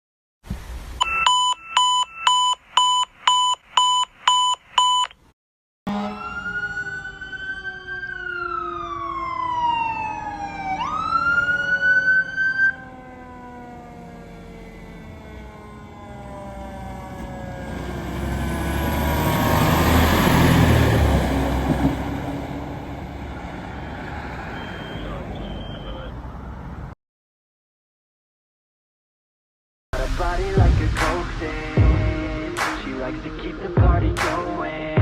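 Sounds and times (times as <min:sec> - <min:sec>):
loud electronic beeps: 0:01.0 - 0:05.1, 0:24.4 - 0:26.1
fire truck siren wailing: 0:05.9 - 0:26.7.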